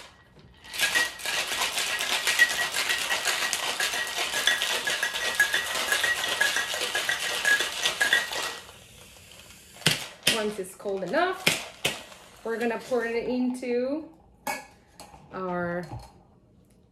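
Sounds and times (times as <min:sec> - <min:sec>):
ice rattling in cocktail shaker: 0:00.6 - 0:08.8.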